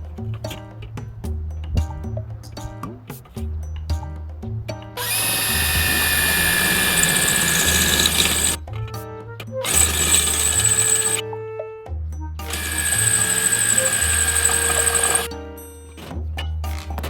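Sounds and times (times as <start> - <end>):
background music with steady beat: 0.0 - 6.5
power tool rasping on steel: 5.0 - 8.6, 9.6 - 11.2, 12.5 - 15.3.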